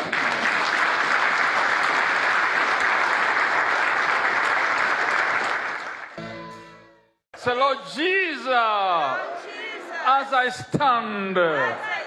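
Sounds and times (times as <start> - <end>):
crowd clapping: 0.0 - 6.4.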